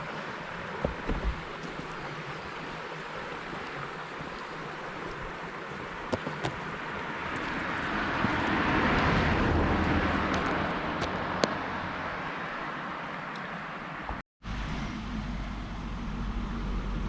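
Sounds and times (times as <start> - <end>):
vehicle passing by: 7.1 - 13.0.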